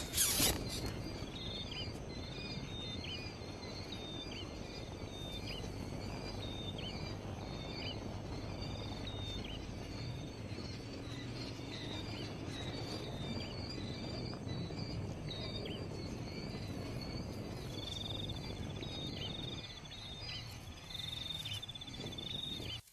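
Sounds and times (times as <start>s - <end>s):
short bird chirps: 0.0s - 1.6s
insects chirping and trilling: 0.0s - 22.9s.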